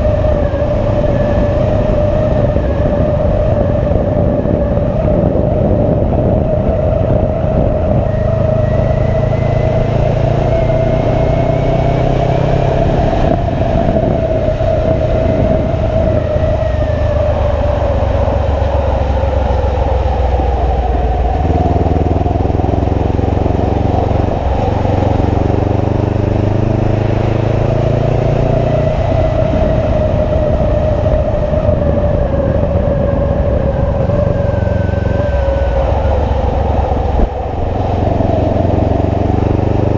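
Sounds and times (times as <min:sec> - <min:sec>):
wind and road noise: 0:00.0 - 0:39.9
motorcycle engine running: 0:21.3 - 0:39.9.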